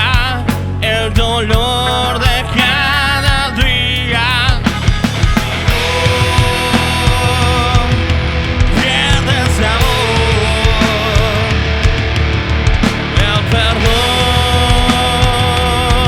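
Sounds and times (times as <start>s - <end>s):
rock band playing loud: 0.0s - 16.0s.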